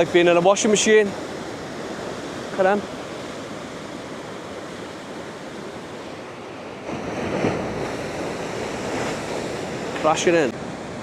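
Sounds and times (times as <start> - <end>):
big wave crashing: 0.0 - 11.0
ocean waves breaking on beach: 0.0 - 11.0.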